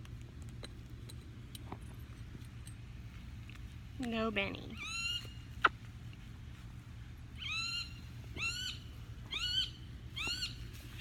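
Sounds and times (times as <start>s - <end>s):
parrot squawking: 4.8s - 5.4s, 7.4s - 10.6s.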